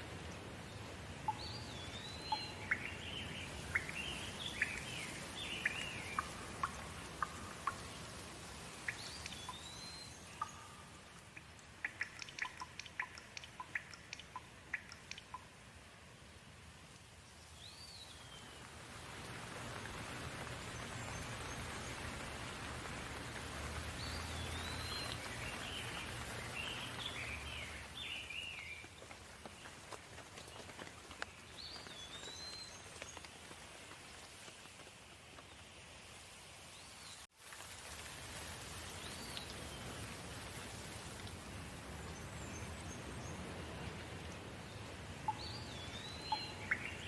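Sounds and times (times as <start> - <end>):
steady rain falling: 0.0 - 47.0
bird chirps: 1.3 - 8.0, 8.9 - 15.5, 45.3 - 47.0.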